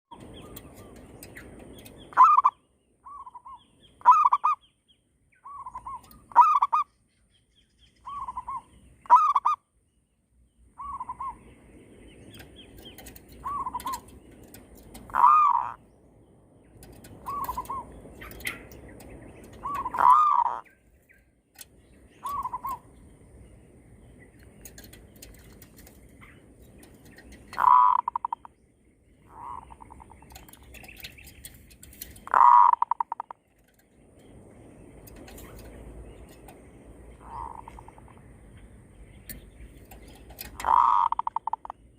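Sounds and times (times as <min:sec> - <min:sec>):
doves cooing: 0:12.4 - 0:15.8, 0:16.8 - 0:20.8, 0:22.2 - 0:22.9, 0:24.6 - 0:28.5, 0:29.2 - 0:33.8, 0:39.9 - 0:41.8.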